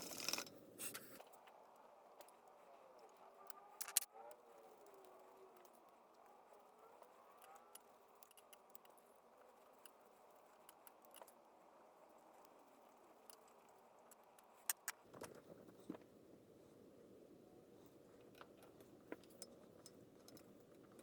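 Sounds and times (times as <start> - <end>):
small metal parts clicking: 0.0 - 1.0, 3.8 - 4.1, 7.3 - 11.4, 13.2 - 15.0.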